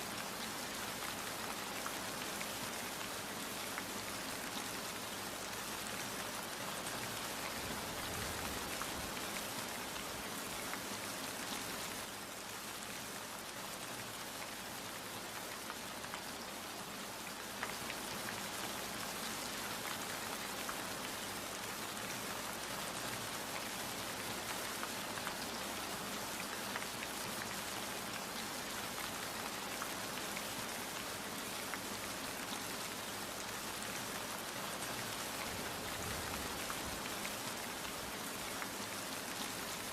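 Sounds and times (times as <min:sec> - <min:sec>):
raindrops pattering: 0:13.4 - 0:39.9.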